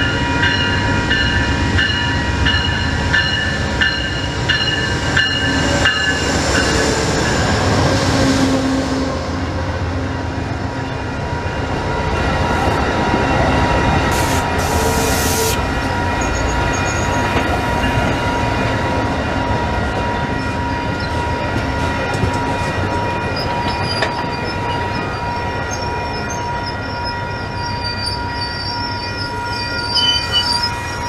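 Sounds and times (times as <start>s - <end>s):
train wheels rumbling on rail: 0.0s - 31.0s
high wheel squeal: 14.1s - 17.9s, 25.2s - 31.0s.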